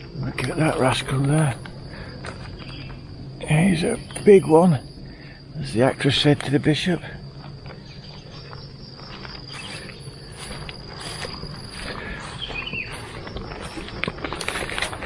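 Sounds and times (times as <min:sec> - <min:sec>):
high-pitched insect drone: 0:00.0 - 0:15.0
small clicks and rustles: 0:13.3 - 0:15.0.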